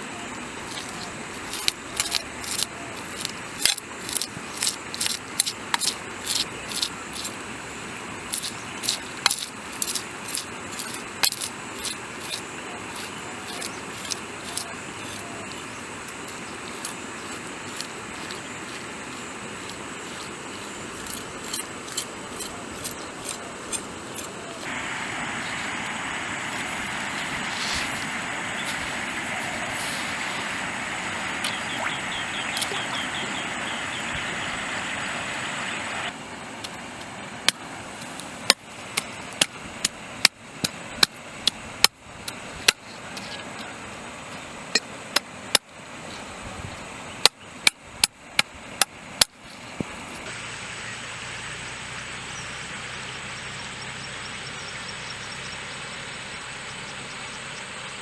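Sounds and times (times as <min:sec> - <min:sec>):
steady rushing noise: 0:24.6 - 0:39.3.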